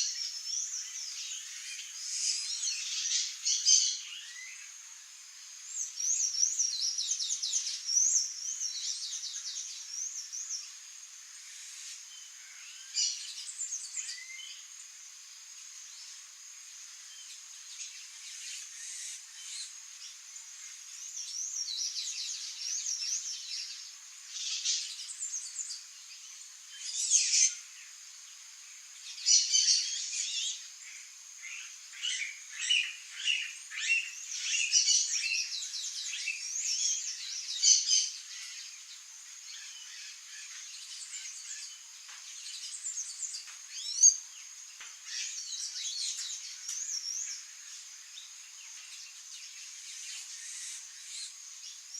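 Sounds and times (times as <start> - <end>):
high insect buzz: 0.0 - 51.9
songbirds chirping and singing: 29.1 - 51.9.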